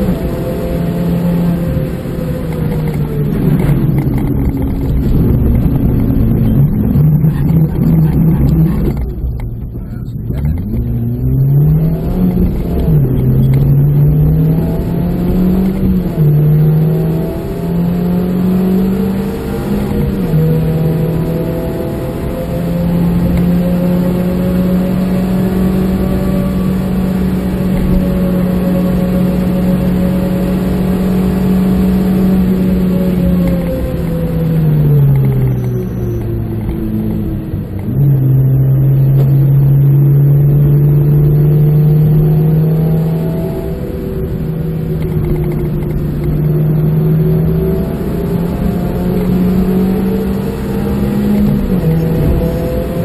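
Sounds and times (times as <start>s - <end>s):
car engine revving: 0.0s - 53.0s
tyre and wind noise: 2.5s - 9.2s.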